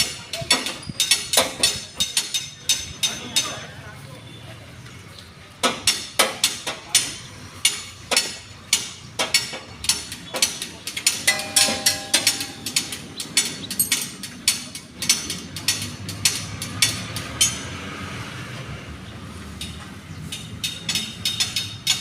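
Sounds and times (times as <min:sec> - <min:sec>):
hand tools clicking on metal: 0:07.7 - 0:17.6, 0:19.6 - 0:22.0.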